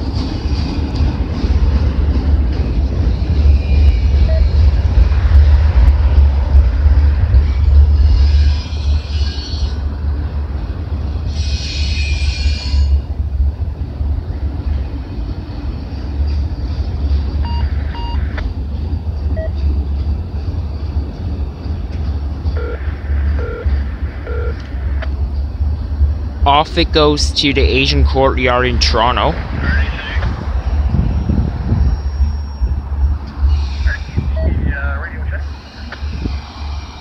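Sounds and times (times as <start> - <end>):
freight train rumbling past: 0.0 - 37.0
train wheels squealing: 3.2 - 4.7, 7.4 - 9.8, 11.2 - 13.1, 30.5 - 34.5.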